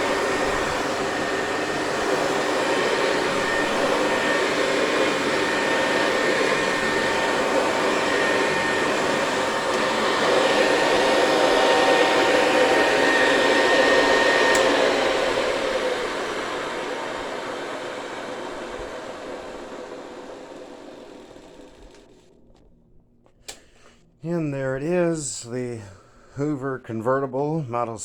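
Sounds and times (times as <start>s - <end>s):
vacuum cleaner running on carpet: 0.0s - 22.4s
vacuum switch click: 14.5s - 14.8s.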